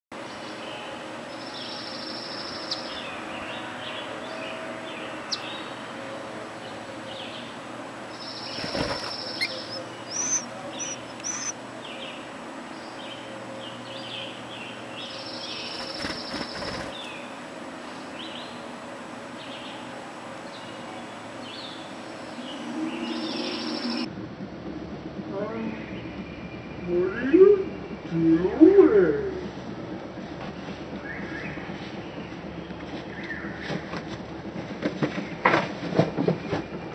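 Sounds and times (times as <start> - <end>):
baby birds chirping: 8.2 - 11.5
wings fluttering: 8.2 - 11.5, 15.5 - 17.2.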